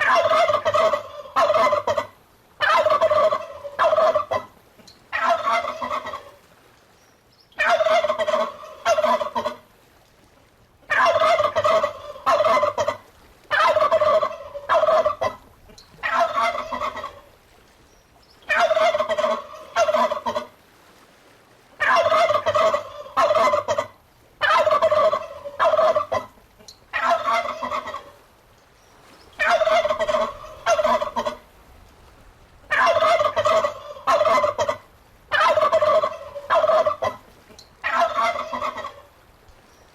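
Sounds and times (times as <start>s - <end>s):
turkey gobbling: 0.0s - 4.5s, 5.1s - 6.4s, 7.6s - 9.6s, 10.9s - 15.4s, 16.0s - 17.3s, 18.5s - 20.5s, 21.8s - 28.2s, 29.4s - 31.4s, 32.7s - 37.2s, 37.8s - 39.1s.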